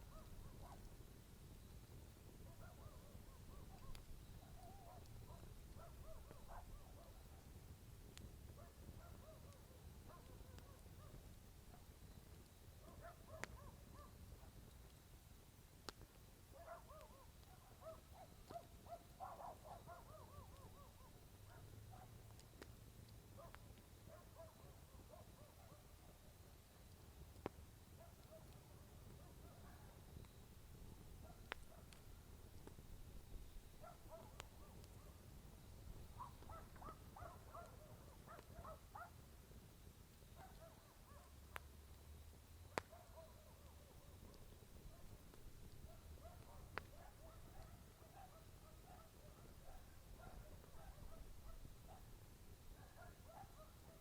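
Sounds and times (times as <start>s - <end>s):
campfire crackling: 0.0s - 54.0s
night bird whistled calls: 2.4s - 7.4s, 16.5s - 22.0s, 33.2s - 39.1s.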